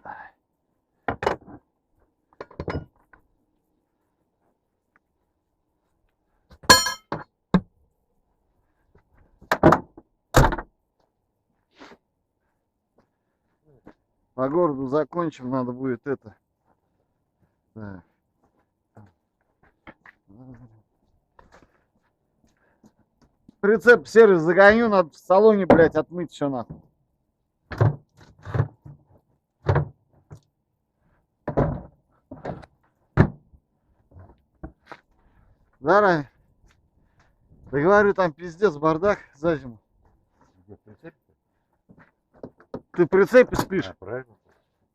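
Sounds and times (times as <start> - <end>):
metallic clang: 6.7 - 7.2
knocks and heavy thuds: 31.4 - 33.5.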